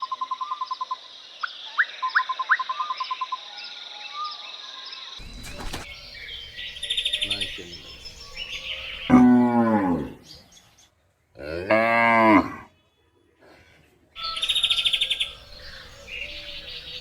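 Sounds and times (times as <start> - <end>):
rapid chattering bird call: 5.2 - 9.1, 14.2 - 17.0
birds chirping: 5.2 - 11.0, 14.2 - 17.0.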